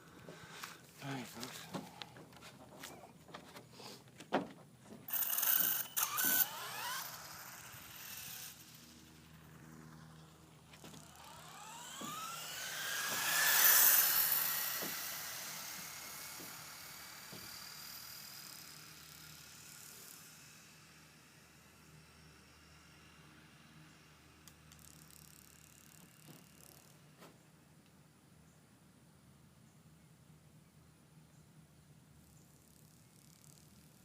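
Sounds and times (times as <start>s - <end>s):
rc car electric motor whining: 5.1s - 27.1s.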